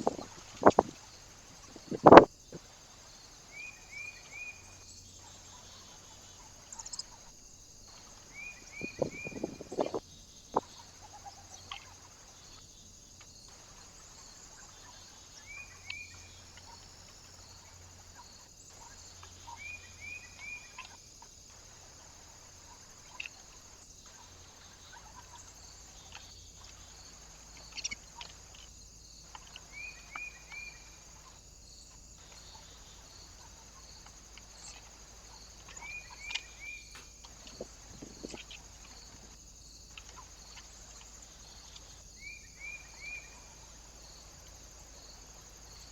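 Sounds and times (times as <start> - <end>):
small birds chirping: 0.0 - 45.9
steady high hiss: 0.0 - 45.9
sharp clicks: 1.7 - 2.3.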